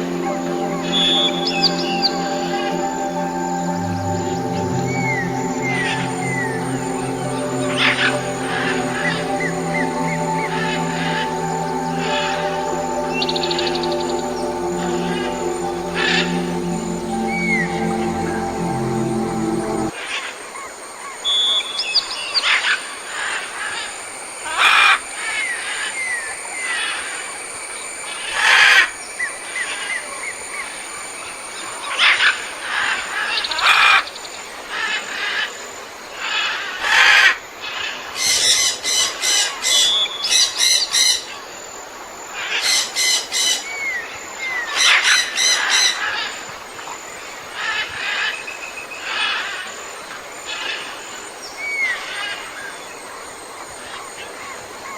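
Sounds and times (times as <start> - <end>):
downward-sliding whistled notes: 0.0 - 20.0
steady thin high tone: 0.0 - 20.0.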